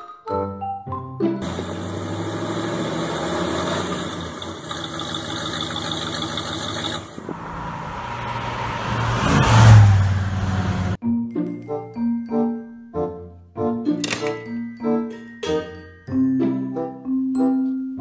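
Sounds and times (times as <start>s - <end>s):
car accelerating away: 1.4s - 11.0s
car engine idling: 1.4s - 11.0s.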